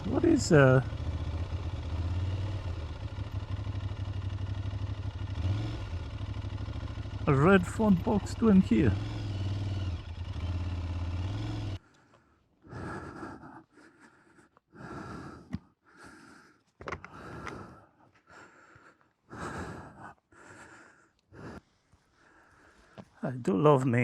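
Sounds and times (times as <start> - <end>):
motorcycle engine idling: 0.0 - 23.1.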